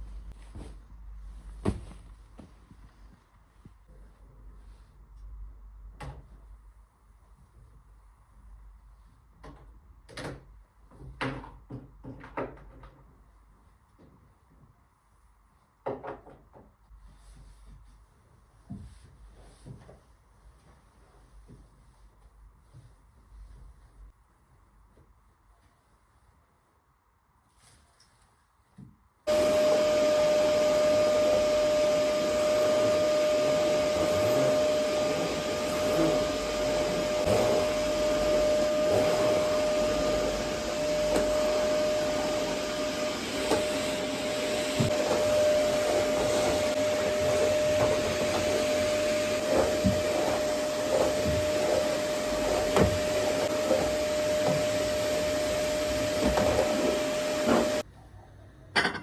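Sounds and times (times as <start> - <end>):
knocks and bumps of vacuum: 1.5 - 2.6, 29.3 - 57.8
vacuum cleaner running: 29.3 - 57.8.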